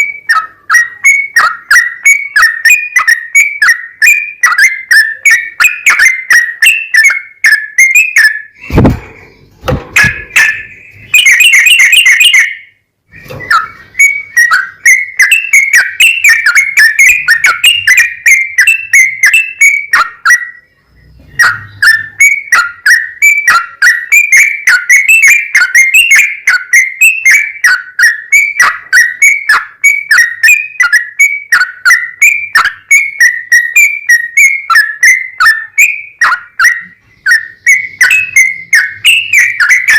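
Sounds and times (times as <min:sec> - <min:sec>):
low thump: 0:08.6 - 0:10.3
bird singing bubbly whistles: 0:10.0 - 0:20.6, 0:21.4 - 0:39.9.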